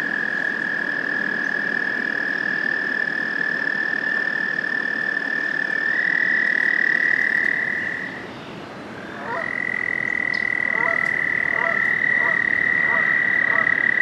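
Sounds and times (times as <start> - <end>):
toads trilling: 9.0 - 14.0.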